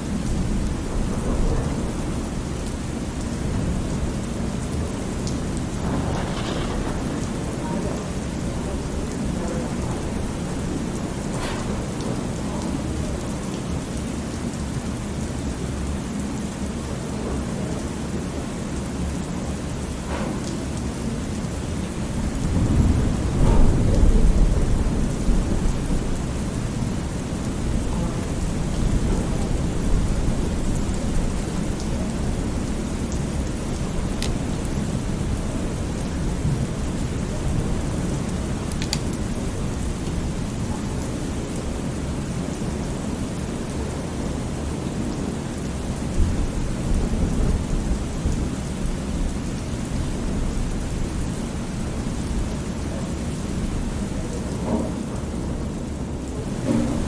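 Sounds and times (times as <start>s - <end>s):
heavy rain: 0.0s - 57.0s
thunder rolling: 3.3s - 12.0s, 21.9s - 40.6s.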